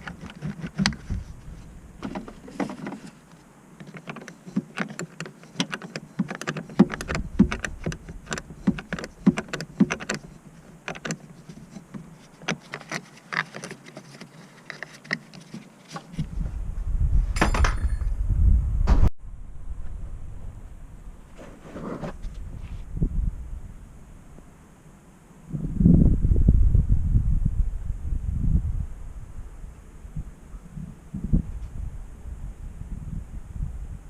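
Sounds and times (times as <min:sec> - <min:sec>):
low rumble: 0:16.3 - 0:21.3.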